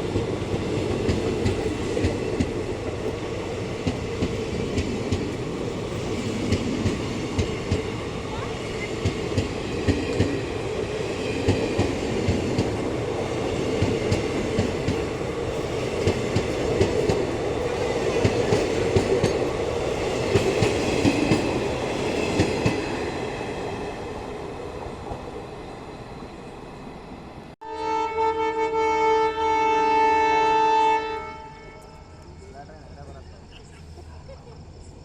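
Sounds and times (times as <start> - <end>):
train wheels clattering: 0.0 - 24.0.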